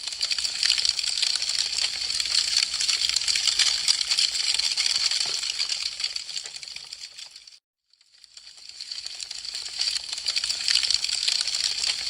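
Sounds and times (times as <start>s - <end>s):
wood fire crackling and popping: 0.0s - 7.5s, 8.2s - 12.0s.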